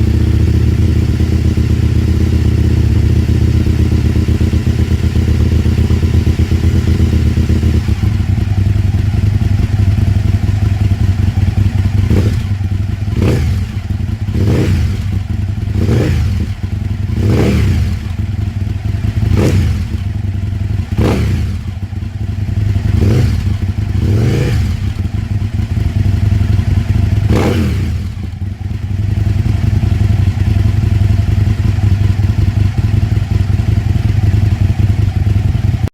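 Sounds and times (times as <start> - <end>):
motorcycle engine idling: 0.0 - 35.9
motorcycle engine revving: 0.0 - 35.9.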